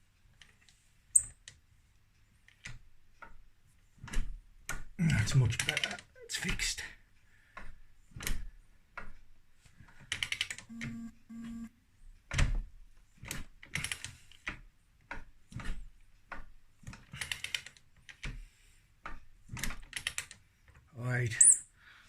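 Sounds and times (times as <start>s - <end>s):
brief low buzzes: 10.7s - 11.7s.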